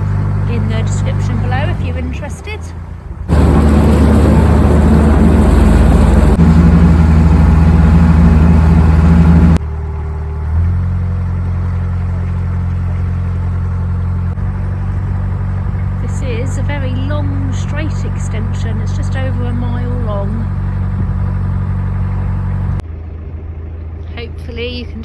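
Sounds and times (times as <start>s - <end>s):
boat engine running: 0.0s - 25.0s.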